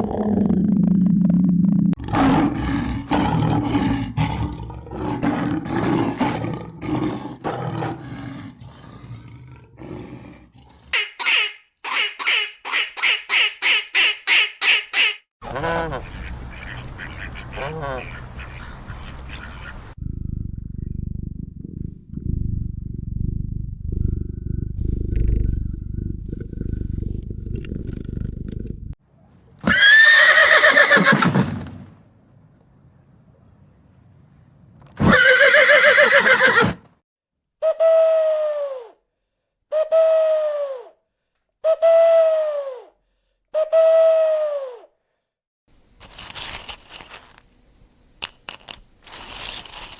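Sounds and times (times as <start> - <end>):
cat purring: 20.0 - 28.9
horse whinnying: 29.6 - 31.4, 35.0 - 36.8.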